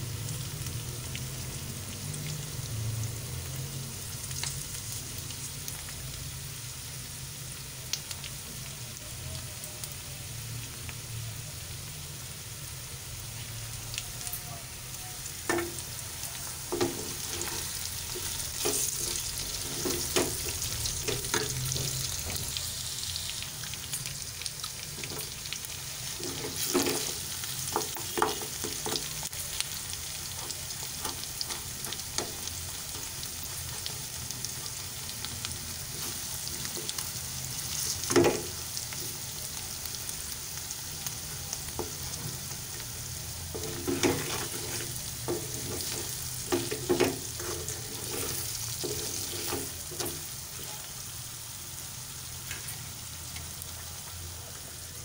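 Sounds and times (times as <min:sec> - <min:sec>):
meat sizzling in oil: 0:00.0 - 0:55.0
wooden spoon knocking and scraping pan: 0:15.5 - 0:15.9, 0:16.7 - 0:22.5, 0:26.2 - 0:29.1, 0:38.0 - 0:38.5, 0:43.6 - 0:50.3.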